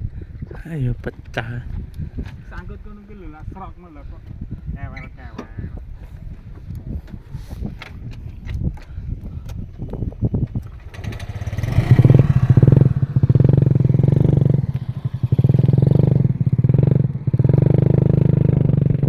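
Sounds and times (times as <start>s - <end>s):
excavator diesel engine under load: 10.5s - 19.0s.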